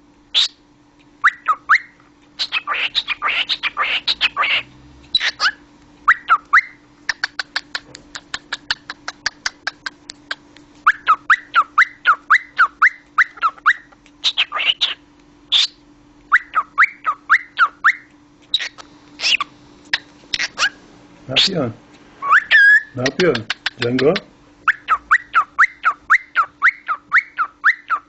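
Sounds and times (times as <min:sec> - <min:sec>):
cockatiel long calls: 0:01.2 - 0:09.8, 0:10.9 - 0:20.8, 0:22.2 - 0:23.8, 0:24.7 - 0:28.0
cockatiel chirps: 0:01.2 - 0:20.8, 0:22.2 - 0:28.0
cockatiel clicks: 0:06.4 - 0:10.7, 0:23.0 - 0:24.2.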